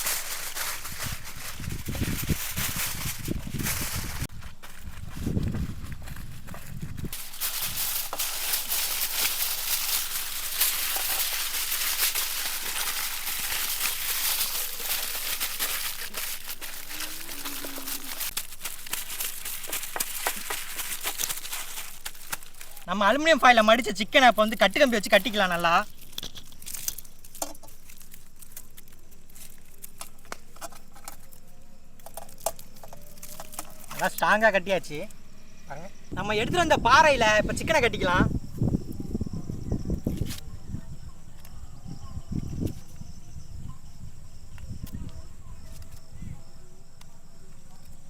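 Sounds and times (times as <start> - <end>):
aluminium foil crinkling: 0.0 - 34.5.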